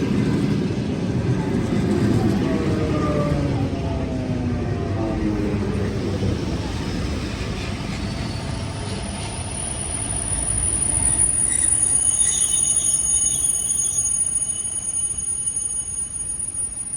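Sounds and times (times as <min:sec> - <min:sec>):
electric train rumble: 0:00.0 - 0:16.9
high-pitched brake squeal: 0:06.3 - 0:16.9.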